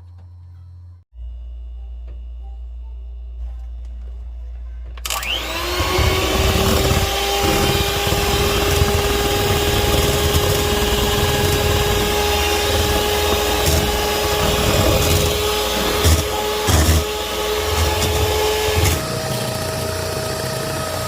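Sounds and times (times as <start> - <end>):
electric mixer motor whine: 5.0 - 21.0.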